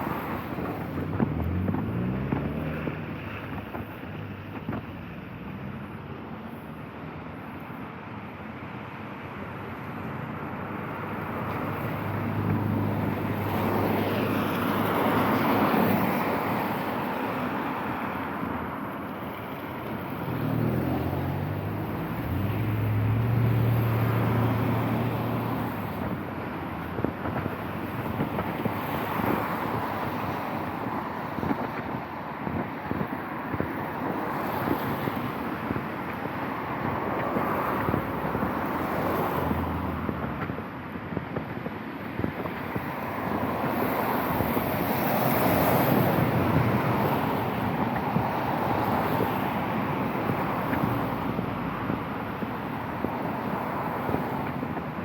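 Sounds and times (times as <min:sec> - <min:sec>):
car engine pulling away: 0:01.0 - 0:03.6, 0:19.7 - 0:29.8.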